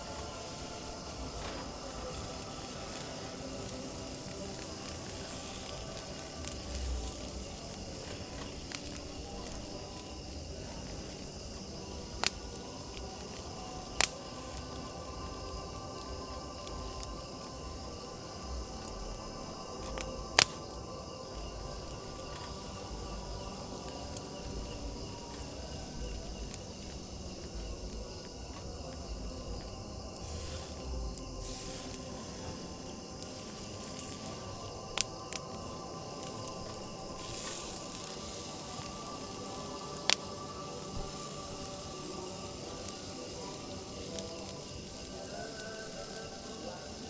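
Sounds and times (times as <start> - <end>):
crickets chirping: 0.0 - 47.0.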